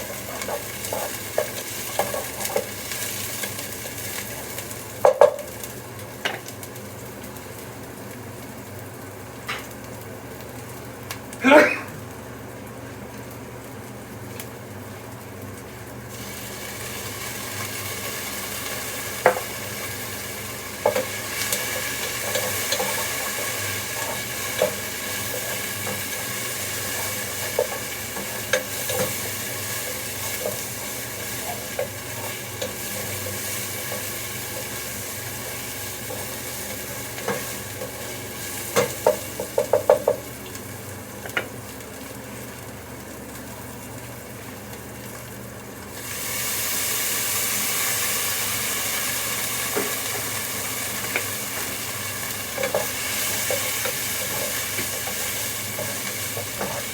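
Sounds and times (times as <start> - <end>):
food sizzling in a frying pan: 0.0 - 56.9.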